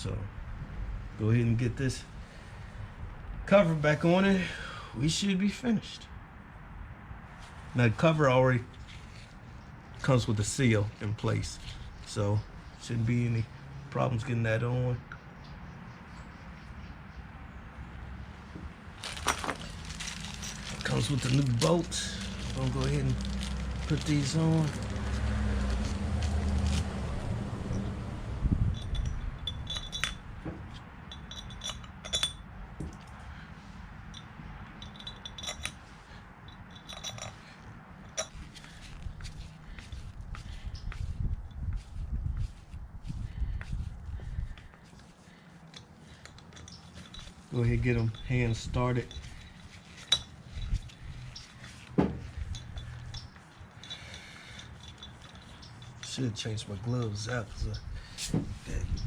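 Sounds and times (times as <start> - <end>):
metal bolts clinking: 28.7 - 33.2, 34.1 - 38.8, 45.7 - 58.4.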